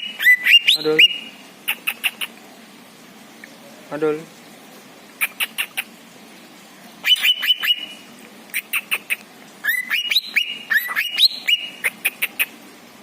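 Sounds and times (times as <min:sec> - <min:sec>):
songbird chirping: 0:00.0 - 0:02.4, 0:07.0 - 0:12.6.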